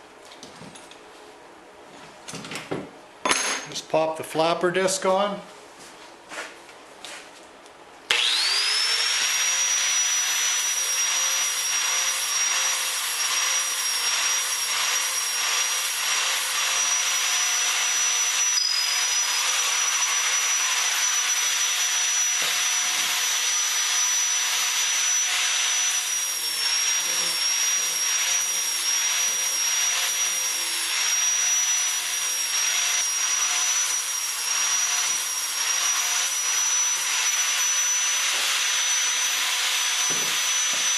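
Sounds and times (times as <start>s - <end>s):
angle grinder whining: 8.1s - 40.9s.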